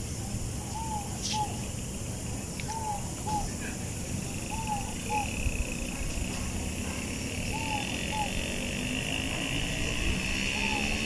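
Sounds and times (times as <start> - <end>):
dove cooing: 4.5 - 5.4, 7.5 - 8.5, 10.5 - 11.0.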